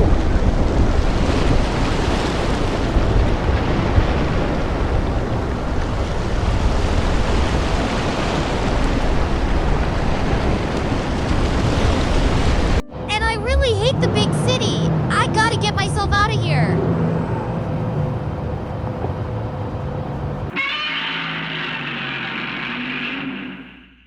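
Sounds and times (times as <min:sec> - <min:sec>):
storm wind rushing: 0:00.0 - 0:12.8.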